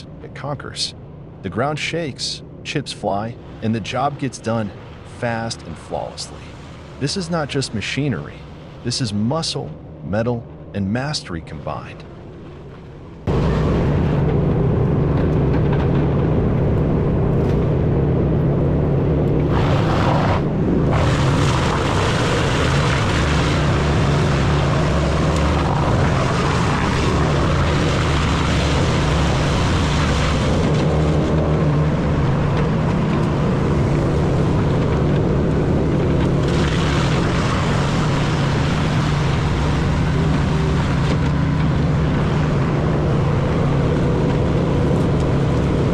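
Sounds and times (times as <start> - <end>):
wood chipper running: 19.5 - 45.9.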